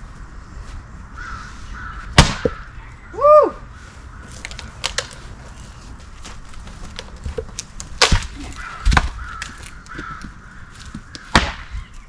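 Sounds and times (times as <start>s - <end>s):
loud sharp knock: 2.2s - 2.6s
firewood knocking: 6.0s - 11.6s.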